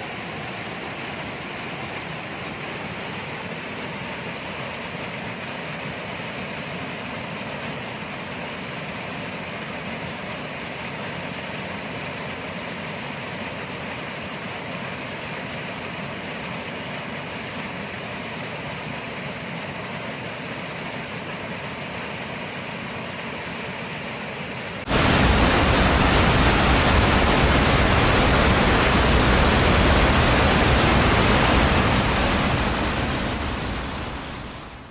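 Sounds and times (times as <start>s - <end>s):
steady rushing noise: 24.8s - 34.9s
even hiss: 24.9s - 34.9s.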